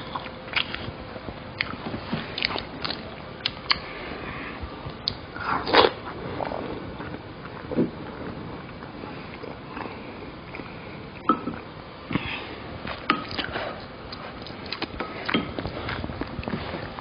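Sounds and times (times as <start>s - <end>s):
chewing: 0.1s - 0.9s, 1.6s - 3.8s, 12.8s - 17.0s.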